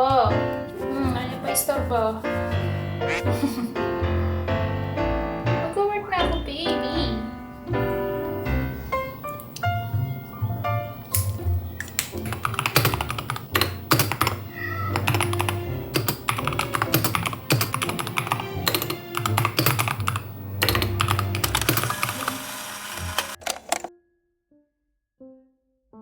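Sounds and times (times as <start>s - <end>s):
computer keyboard typing: 11.8s - 23.9s.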